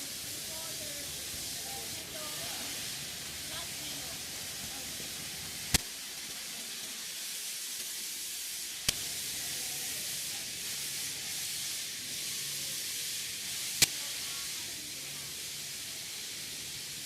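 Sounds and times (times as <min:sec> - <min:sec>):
high hiss of workshop noise: 0:00.0 - 0:17.0.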